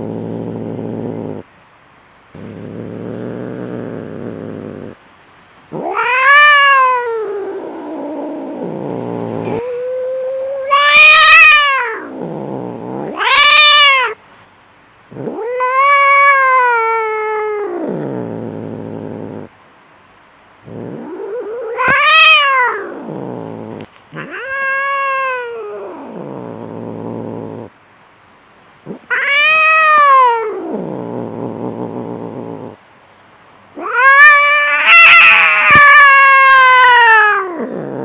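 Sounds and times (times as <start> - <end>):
cats yowling in a fight: 5.7 - 14.2, 15.2 - 18.2, 20.7 - 27.7, 28.9 - 31.8, 33.8 - 38.0.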